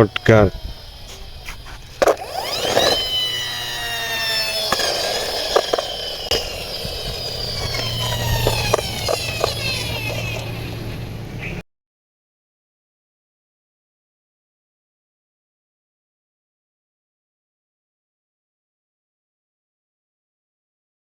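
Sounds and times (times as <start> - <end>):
toy gear mechanism whining: 0.0 - 11.2.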